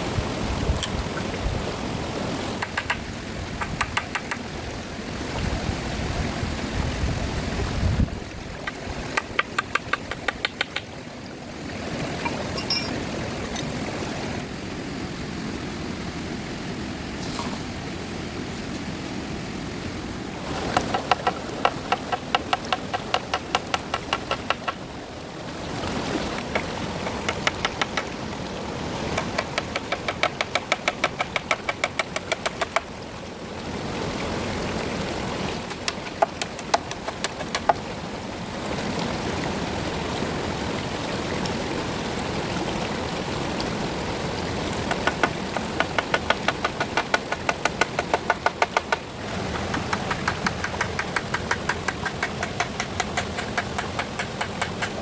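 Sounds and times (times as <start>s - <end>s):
rapid evenly spaced knocks: 2.6s - 4.4s, 9.2s - 10.9s, 20.7s - 24.8s, 29.2s - 32.8s, 44.9s - 55.0s.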